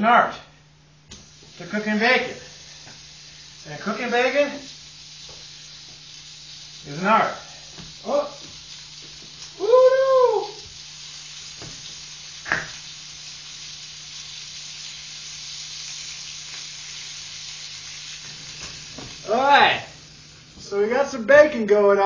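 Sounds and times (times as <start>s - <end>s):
bacon sizzling in a pan: 1.1s - 21.7s
man shouting woo: 9.6s - 10.6s.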